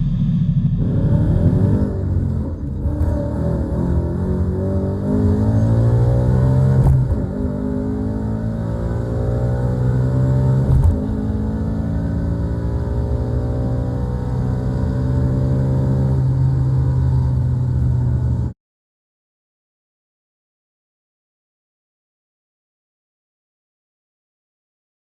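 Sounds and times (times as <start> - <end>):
car engine accelerating hard: 0.0 - 18.5.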